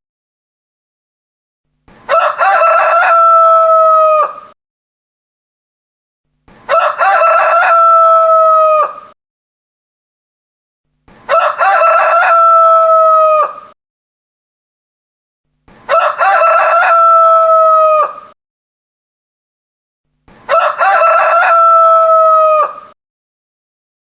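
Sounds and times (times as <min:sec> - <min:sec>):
rooster crowing: 0:02.1 - 0:04.6, 0:06.7 - 0:09.2, 0:11.3 - 0:13.8, 0:15.9 - 0:18.4, 0:20.5 - 0:23.0.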